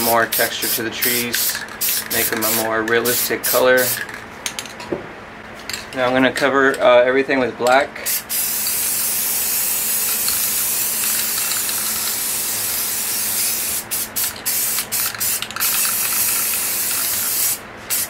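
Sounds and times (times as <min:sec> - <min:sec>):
aerosol spray can hissing: 0:08.1 - 0:18.0.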